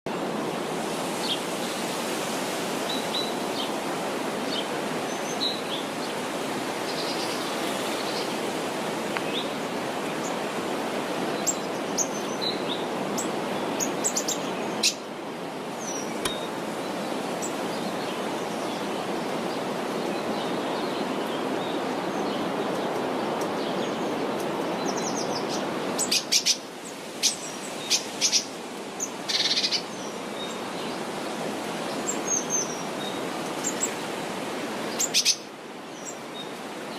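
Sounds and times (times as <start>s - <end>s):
birds chirping: 15.8s - 19.1s.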